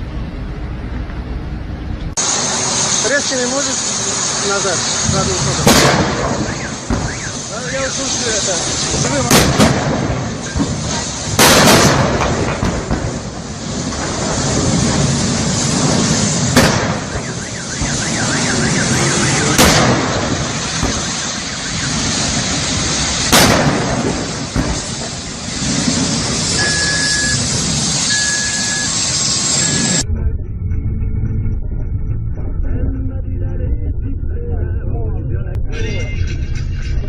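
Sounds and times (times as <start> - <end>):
fire roaring: 0.0 - 32.3
explosive bangs: 2.2 - 28.2
short high beeps: 26.6 - 30.1.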